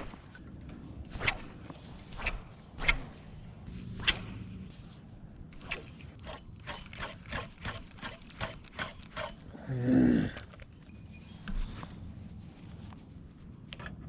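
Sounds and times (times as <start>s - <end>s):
fishing reel clicking: 5.6s - 9.4s.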